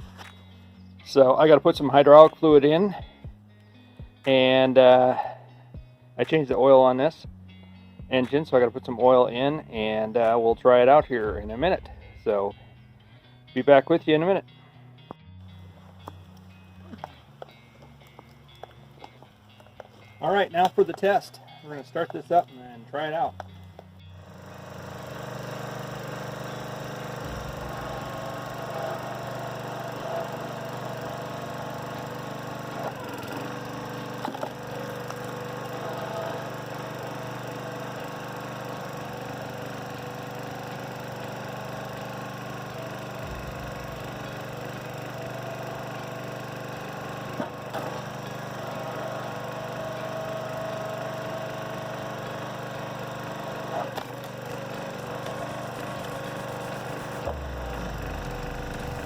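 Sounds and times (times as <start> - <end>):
small gas engine running: 23.1 - 59.0.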